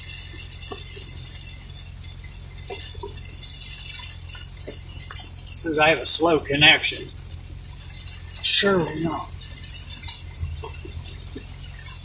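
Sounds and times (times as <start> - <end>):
heavy rain on vehicle roof: 0.0 - 12.0
low steady hum: 0.0 - 12.0.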